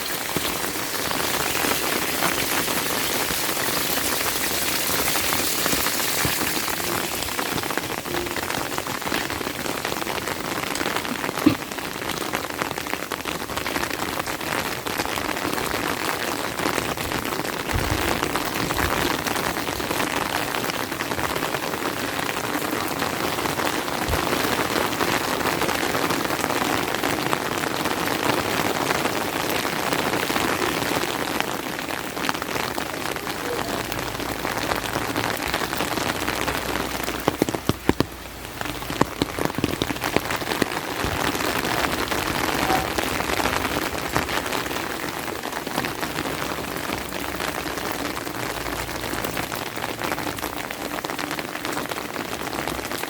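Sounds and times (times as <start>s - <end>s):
rain falling: 0.0s - 53.0s
dull low thumps: 17.0s - 20.0s.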